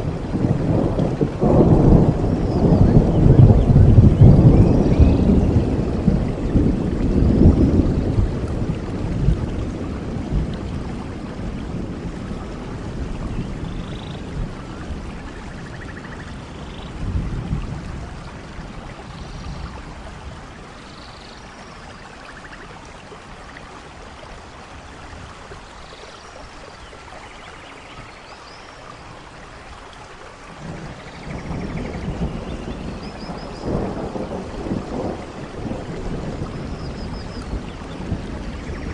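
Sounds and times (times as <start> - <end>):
thunder rumbling: 0.0 - 20.9, 30.5 - 38.9
steady rain: 0.0 - 38.9.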